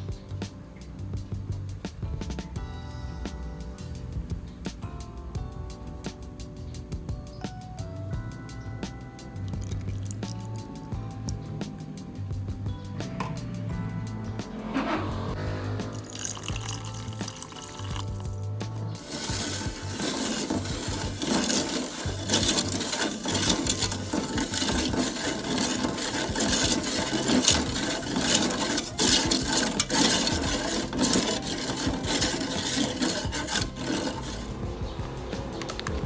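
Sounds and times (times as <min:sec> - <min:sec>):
kitchen utensil scraping: 0:14.7 - 0:15.3, 0:18.9 - 0:34.7.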